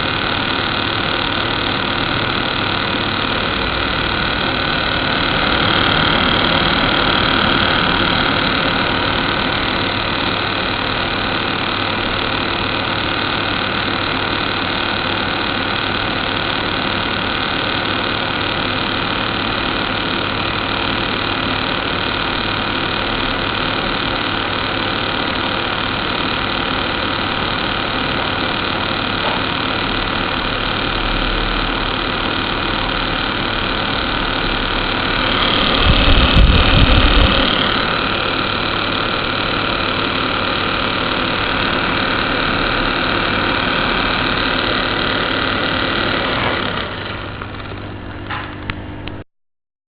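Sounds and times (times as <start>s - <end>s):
air conditioner hum and whir: 31.6s - 49.2s.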